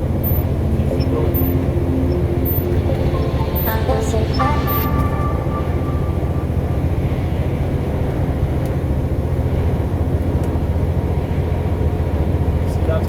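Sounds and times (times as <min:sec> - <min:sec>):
high steady tone: 0:00.0 - 0:08.6
truck engine and road rumble: 0:00.0 - 0:13.0.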